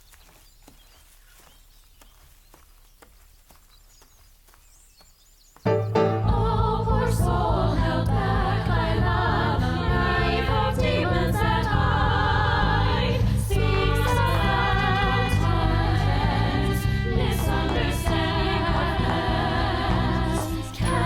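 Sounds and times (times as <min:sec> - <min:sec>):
choir singing sustained notes: 0:05.7 - 0:21.0
steady low bass: 0:05.8 - 0:21.0.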